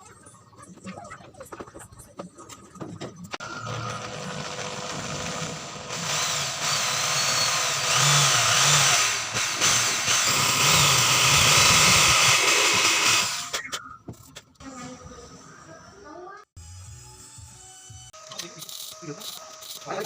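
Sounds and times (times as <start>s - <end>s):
power tool grinding whine: 3.4s - 13.5s.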